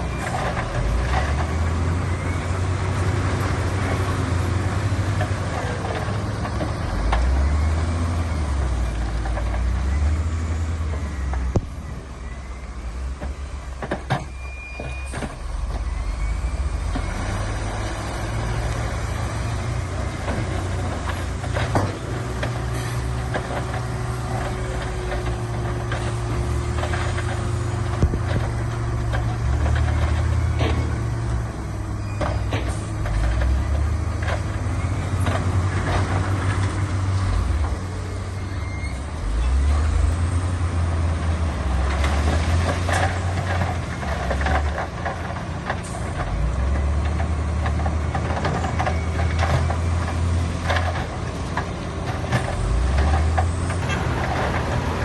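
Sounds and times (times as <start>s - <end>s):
heavy machinery engines rumbling: 0.0s - 55.0s.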